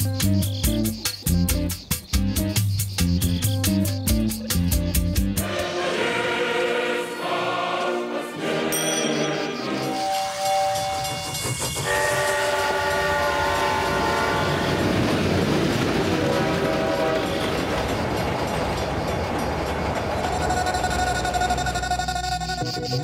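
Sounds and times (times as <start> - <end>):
train running: 0.0 - 23.0
train horn chord: 8.1 - 14.9, 16.2 - 17.5.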